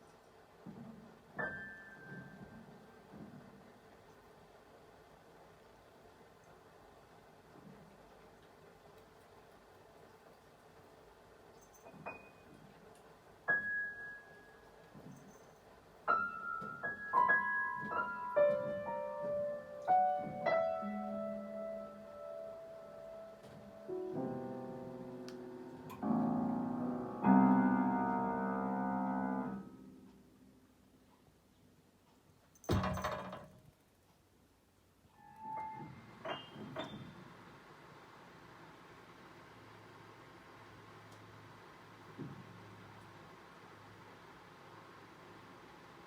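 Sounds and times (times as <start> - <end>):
random piano notes: 16.1 - 30.8.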